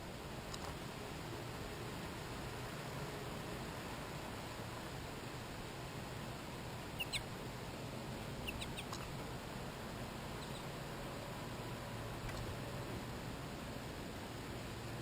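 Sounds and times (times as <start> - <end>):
steady hiss: 0.0 - 15.0
high-pitched animal calls: 6.9 - 7.4, 8.4 - 9.1, 10.4 - 10.8.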